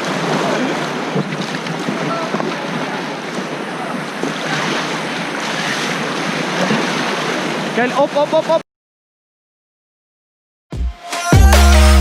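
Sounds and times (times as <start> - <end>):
wind buffeting microphone: 0.0 - 7.8
river rapids rushing: 0.0 - 8.5.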